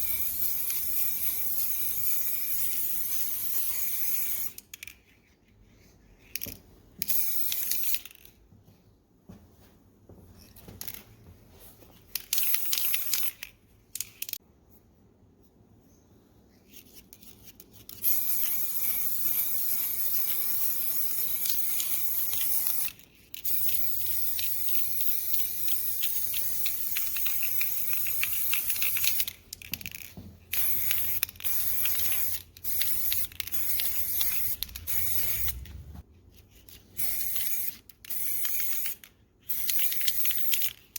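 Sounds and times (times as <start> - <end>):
spray paint hissing: 0.0 - 4.6, 12.4 - 13.4, 18.0 - 29.4, 30.5 - 36.0, 37.0 - 40.9.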